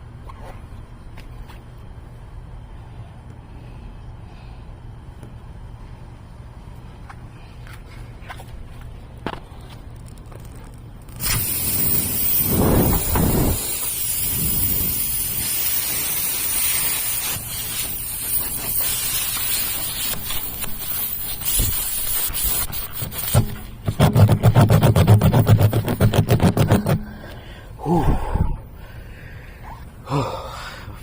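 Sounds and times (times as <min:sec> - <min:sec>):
low rumbling: 0:10.0 - 0:15.4
pressurised gas hissing: 0:11.2 - 0:23.6.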